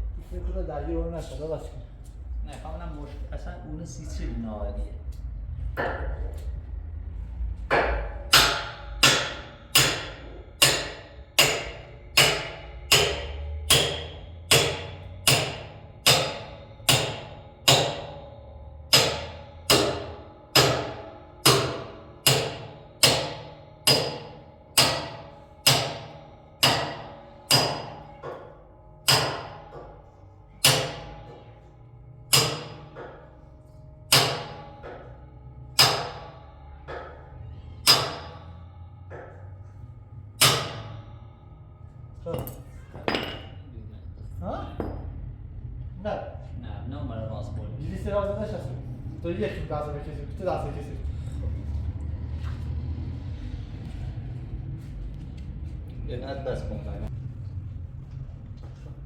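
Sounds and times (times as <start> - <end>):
hammer blows on metal: 7.7 - 43.6.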